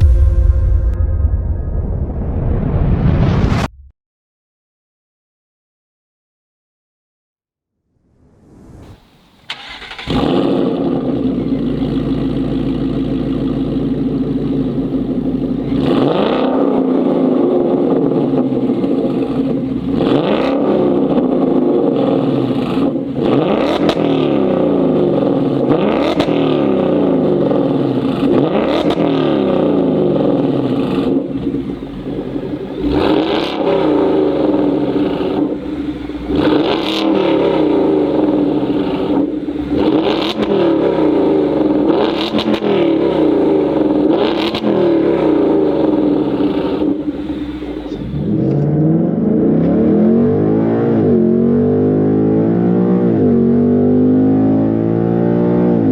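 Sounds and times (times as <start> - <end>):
car engine revving: 8.2 - 55.9
car engine starting and idling: 8.4 - 51.3.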